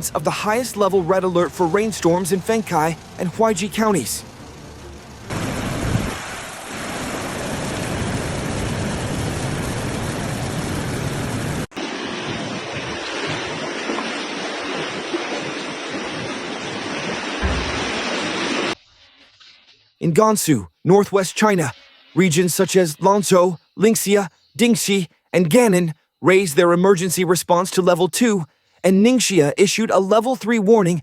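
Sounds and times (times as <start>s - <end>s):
rushing floodwater: 0.0s - 4.3s, 5.2s - 10.2s, 11.1s - 18.8s.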